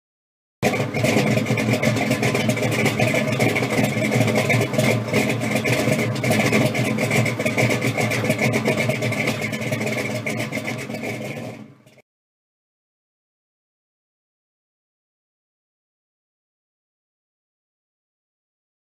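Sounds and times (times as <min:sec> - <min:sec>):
car engine idling: 0:00.6 - 0:12.0.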